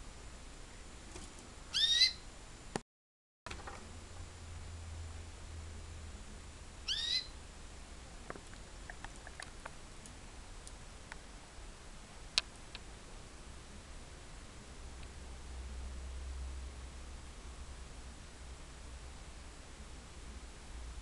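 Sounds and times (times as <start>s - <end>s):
canary chirp: 1.7s - 2.3s, 6.8s - 7.4s.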